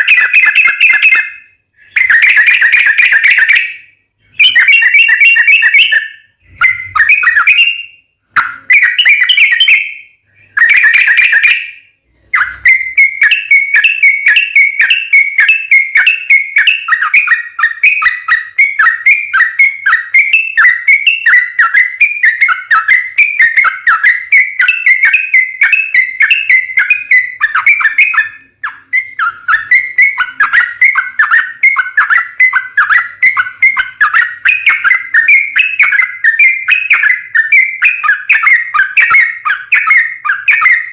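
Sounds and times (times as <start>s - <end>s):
bulbul chattering song: 0.0s - 40.9s.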